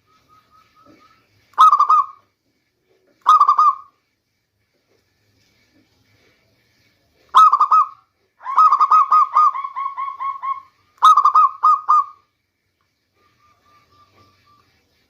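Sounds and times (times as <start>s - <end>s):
dove cooing: 0.8s - 2.2s, 3.2s - 3.9s, 7.4s - 12.2s.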